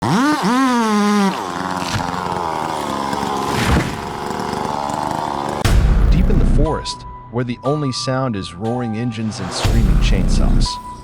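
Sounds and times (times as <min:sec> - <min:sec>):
chainsaw at full throttle: 0:00.0 - 0:06.5
sharp crack: 0:01.3 - 0:05.9.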